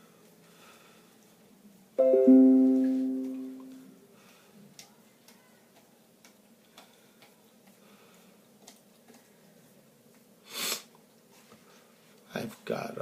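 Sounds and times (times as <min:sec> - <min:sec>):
two-note plucked chime: 0:02.0 - 0:03.8.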